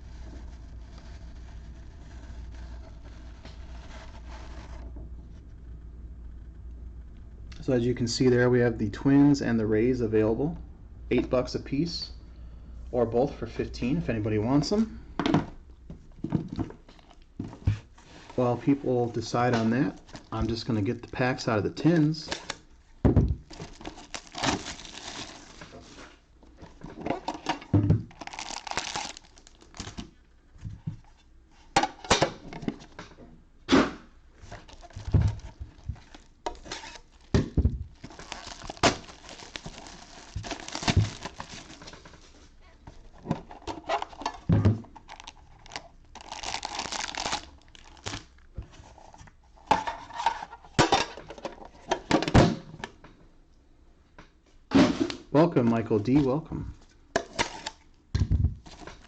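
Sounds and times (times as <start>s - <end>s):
foil card packs crinkling: 23.4s - 26.2s, 28.1s - 30.2s, 34.4s - 42.3s, 45.0s - 48.5s.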